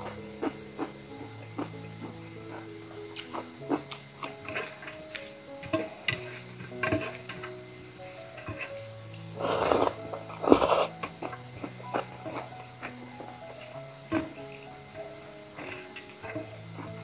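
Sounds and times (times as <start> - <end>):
eating sounds: 0.0 - 6.2, 9.4 - 14.6
soft background music: 0.0 - 17.0.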